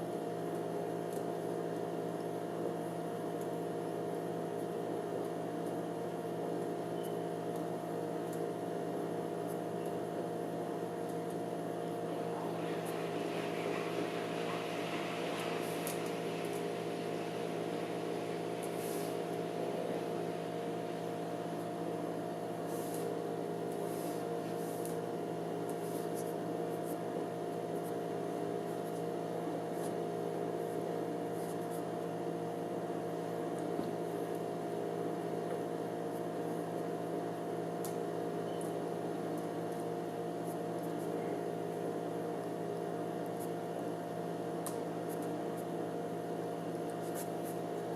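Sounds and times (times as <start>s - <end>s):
spinning gyroscope humming: 12.0s - 22.0s.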